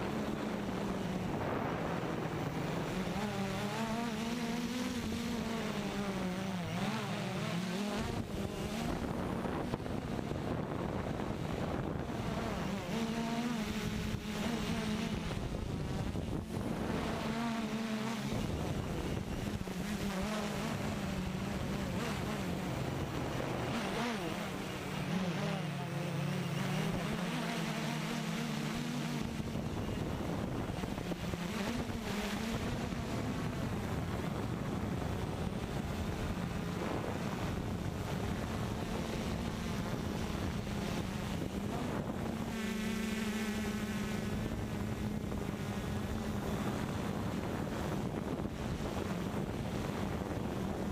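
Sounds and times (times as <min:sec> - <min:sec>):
drone propellers buzzing: 0:00.0 - 0:50.9
wind on microphone: 0:00.0 - 0:50.9.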